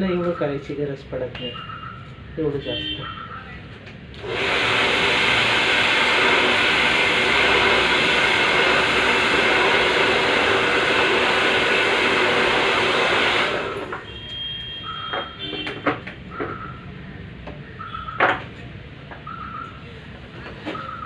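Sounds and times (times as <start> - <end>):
hair dryer blowing: 4.1 - 14.0.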